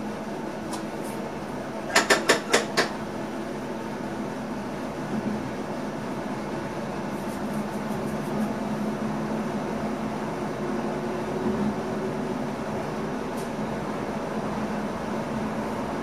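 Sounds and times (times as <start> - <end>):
train cab hum and rumble: 0.0 - 16.0.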